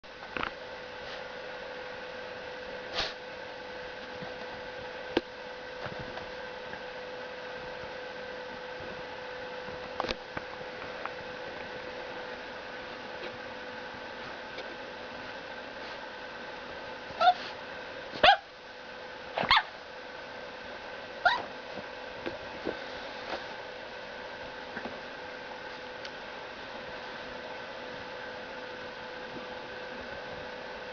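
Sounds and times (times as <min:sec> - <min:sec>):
electrical hum: 0:00.0 - 0:30.9
puppy barking high-pitched: 0:17.2 - 0:17.4, 0:18.2 - 0:18.5, 0:19.4 - 0:19.8, 0:21.2 - 0:21.5.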